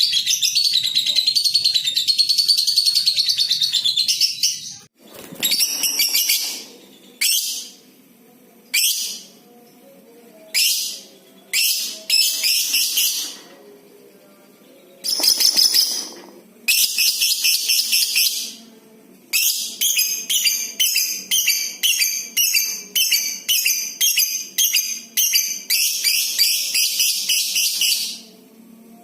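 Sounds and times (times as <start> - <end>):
lovebird high-pitched trills: 8.7 - 13.7.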